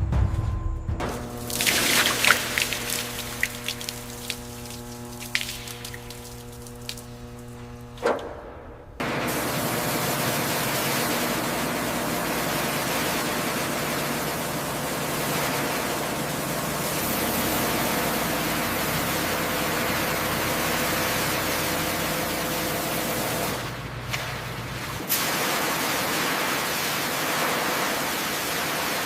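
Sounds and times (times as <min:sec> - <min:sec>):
faint hum: 0:00.0 - 0:15.1.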